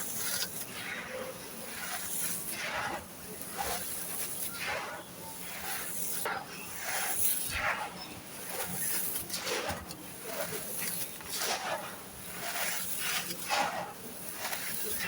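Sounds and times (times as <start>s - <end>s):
sand-cement chunks crunching: 7.0s - 15.0s.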